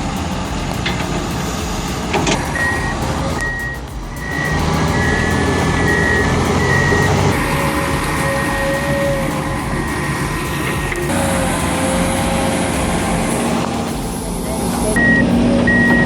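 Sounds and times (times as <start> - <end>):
diesel engine rumbling: 0.0 - 16.0
backup alarm beeping: 2.3 - 12.1, 12.8 - 16.0.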